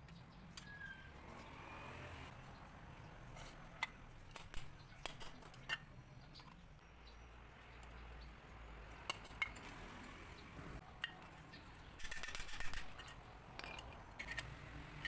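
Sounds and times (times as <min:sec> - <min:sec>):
light metallic clicks and clinks: 0:08.9 - 0:10.3, 0:12.1 - 0:14.6.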